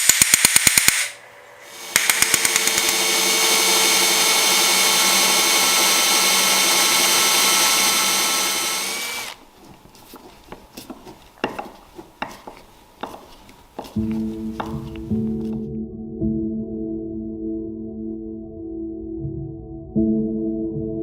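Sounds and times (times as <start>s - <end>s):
power tool running and spinning down: 1.6s - 9.4s.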